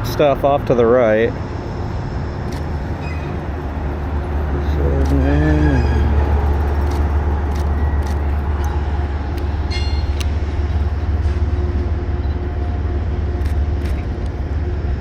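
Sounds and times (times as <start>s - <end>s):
train rumbling: 0.0s - 15.0s
high squeal: 3.0s - 3.5s, 9.6s - 10.5s.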